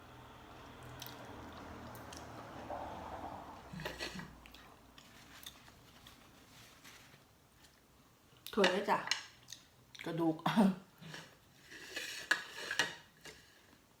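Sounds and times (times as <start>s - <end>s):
person chewing wetly: 0.6s - 2.4s.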